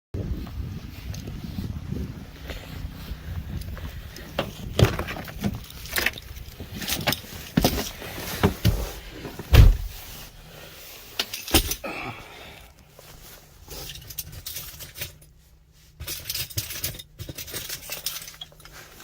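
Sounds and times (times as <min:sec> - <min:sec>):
heavy thump: 0:07.6 - 0:10.0.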